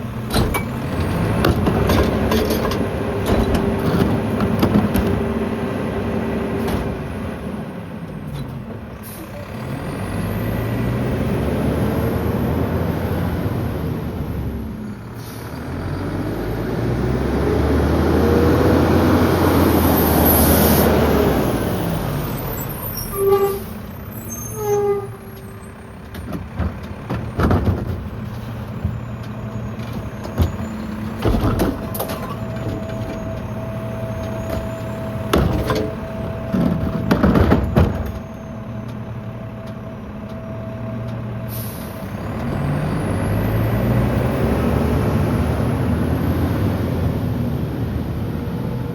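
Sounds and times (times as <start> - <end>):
garbage truck engine revving: 0.0 - 24.1, 40.9 - 48.9
sharp clunks: 0.3 - 0.8
short squeals: 22.3 - 26.0.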